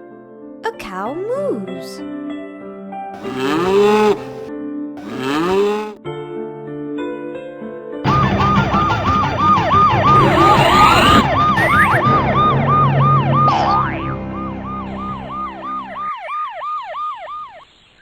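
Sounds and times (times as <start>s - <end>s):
siren-like wailing tone: 3.2s - 4.4s, 8.1s - 17.6s
sliding tones: 3.2s - 6.0s, 10.0s - 12.4s.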